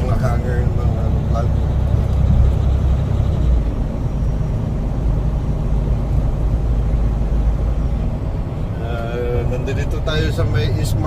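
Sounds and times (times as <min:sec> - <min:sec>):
road noise: 0:00.0 - 0:11.0
truck engine rumbling: 0:00.0 - 0:11.0.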